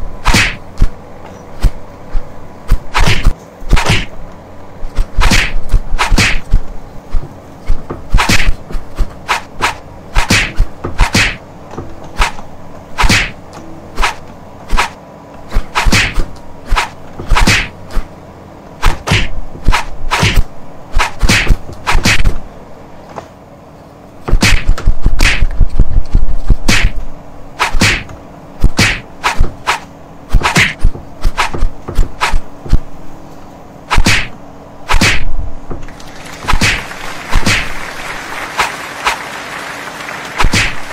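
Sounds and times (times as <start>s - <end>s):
heavy low rumble: 0.0s - 23.0s
diesel excavator engine running: 0.0s - 40.9s.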